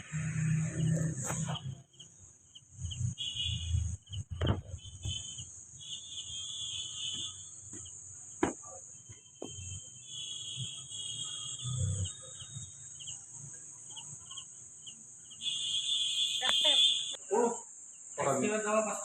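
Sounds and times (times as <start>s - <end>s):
insect chirring: 0.0s - 19.0s
sharp knocks: 7.1s - 8.8s.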